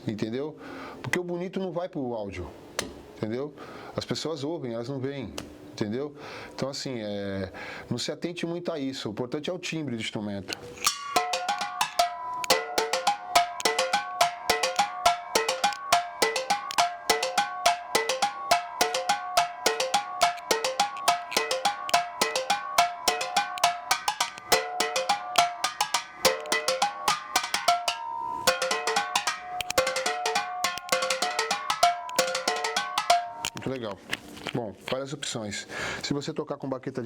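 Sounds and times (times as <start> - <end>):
metal bell struck with drumstick: 10.7 - 33.7.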